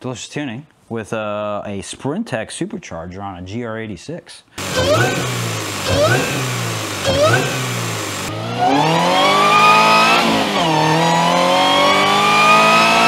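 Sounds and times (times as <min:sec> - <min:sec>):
car engine revving and accelerating: 0:04.6 - 0:13.0.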